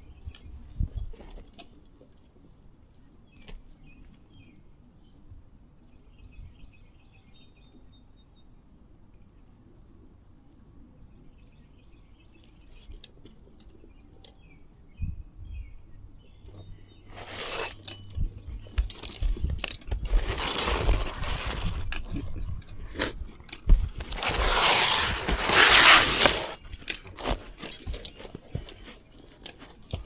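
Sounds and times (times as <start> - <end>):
roof shingles scraping and rustling: 17.1 - 17.9, 20.0 - 22.0, 23.9 - 29.8.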